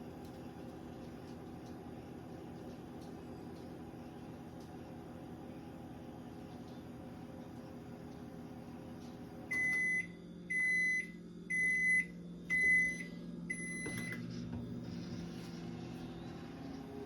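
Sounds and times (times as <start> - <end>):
microwave oven humming: 0.0 - 17.0
high-pitched microwave beeps: 9.4 - 16.4.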